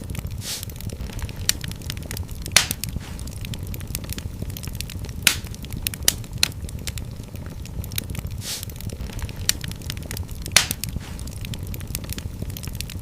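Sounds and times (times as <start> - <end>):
fireplace fire crackling: 0.0 - 13.0
low rumble: 0.0 - 13.0
sharp fire pops: 0.0 - 13.0
short hiss: 0.4 - 0.7, 8.4 - 8.7.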